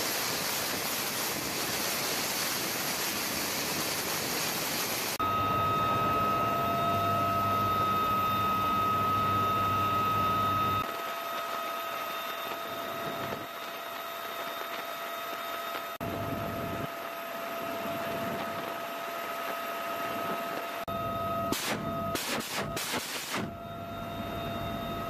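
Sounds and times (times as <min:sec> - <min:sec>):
helicopter cabin noise: 0:00.2 - 0:10.9
high whine: 0:00.9 - 0:13.8, 0:15.7 - 0:25.0.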